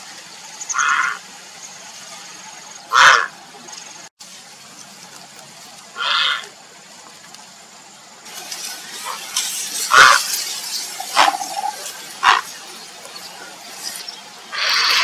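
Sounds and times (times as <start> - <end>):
heron croaking: 0.7 - 1.2, 2.9 - 3.3, 6.0 - 6.5, 9.9 - 10.2, 11.1 - 12.5, 14.5 - 15.0
rustling and splashing: 3.4 - 15.0.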